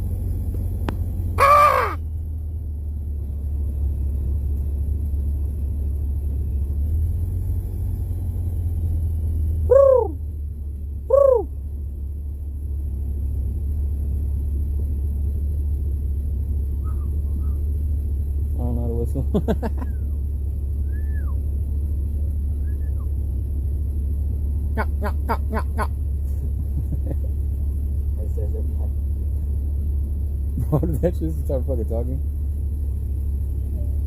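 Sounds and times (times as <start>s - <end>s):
steady low rumble: 0.0s - 34.0s
bird calling: 1.4s - 2.1s, 9.6s - 10.2s, 11.0s - 11.6s, 16.8s - 17.7s, 22.5s - 23.2s.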